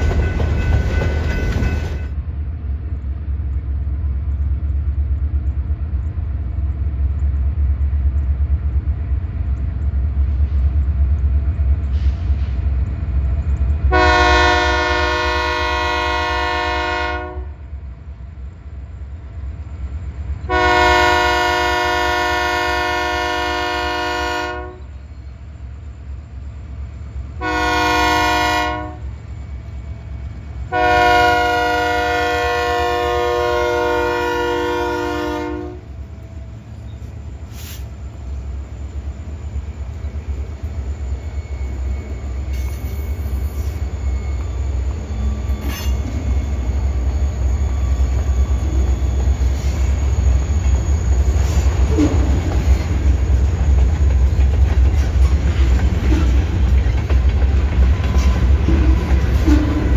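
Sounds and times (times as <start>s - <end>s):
locomotive air horn blasts: 13.9s - 17.6s, 20.5s - 24.9s, 27.4s - 29.1s, 30.7s - 36.0s.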